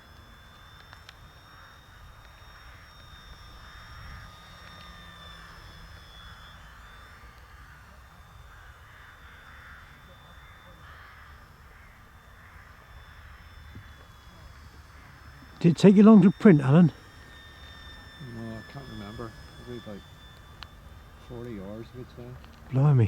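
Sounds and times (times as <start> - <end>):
model plane motor whine: 0.0 - 23.0
crows cawing: 7.6 - 14.1, 14.9 - 15.4.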